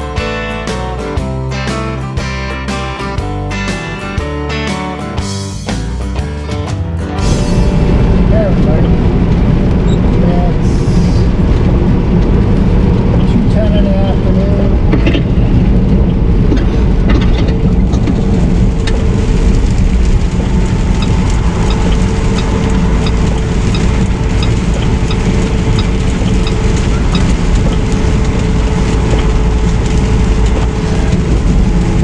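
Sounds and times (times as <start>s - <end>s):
truck engine and road drone: 0.0s - 32.0s
low hum: 7.0s - 32.0s
light ticking: 20.0s - 30.8s.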